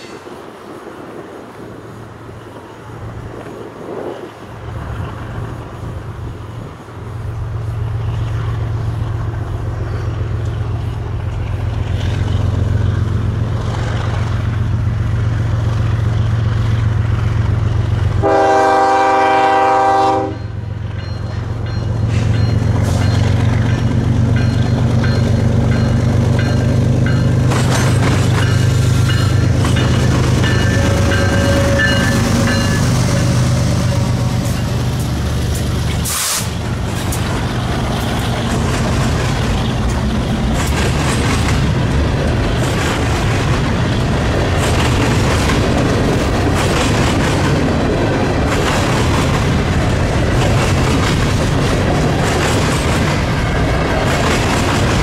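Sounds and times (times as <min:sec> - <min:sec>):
diesel locomotive engine rumble: 0:00.0 - 0:55.0
freight cars clattering over rails: 0:21.6 - 0:55.0
short hiss: 0:36.0 - 0:36.6.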